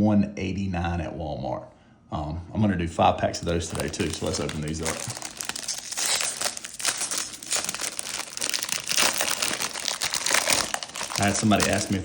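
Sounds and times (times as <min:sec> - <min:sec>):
plastic wrapping crinkling and tearing: 0:03.4 - 0:12.0.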